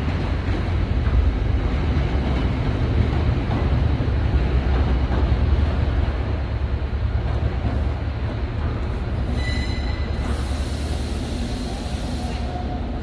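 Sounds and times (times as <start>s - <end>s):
freight train heavy rumble: 0.0s - 13.0s
high wheel squeal: 9.3s - 10.6s.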